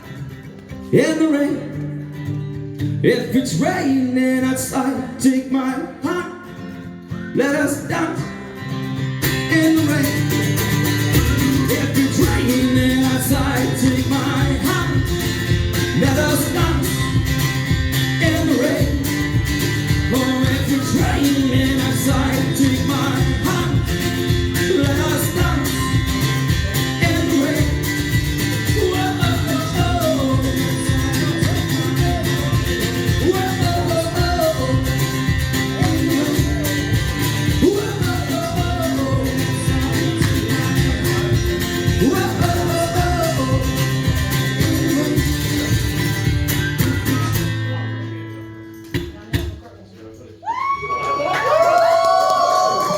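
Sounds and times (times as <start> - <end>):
acoustic guitar strumming: 0.0 - 49.6
person singing: 9.3 - 46.1.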